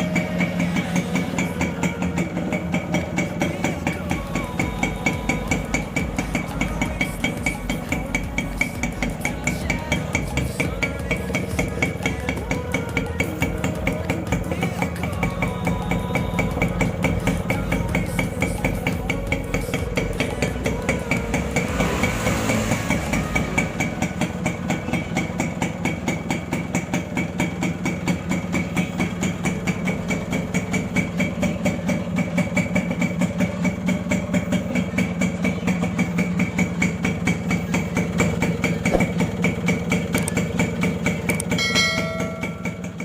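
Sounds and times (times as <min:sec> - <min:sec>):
two-stroke engine idling: 0:00.0 - 0:43.0.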